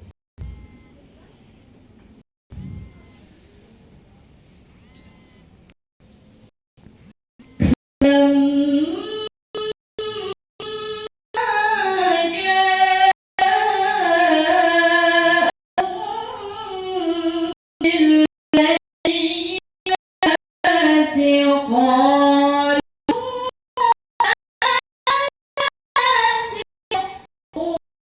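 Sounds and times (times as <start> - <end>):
woman reciting melodically: 8.0 - 10.4, 11.4 - 27.8.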